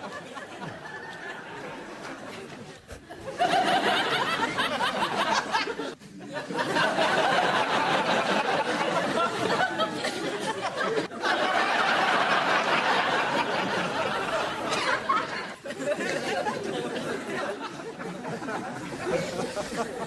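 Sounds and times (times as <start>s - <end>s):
voices chattering and snickering: 0.0s - 7.8s, 13.5s - 20.0s
laughter: 0.0s - 20.0s.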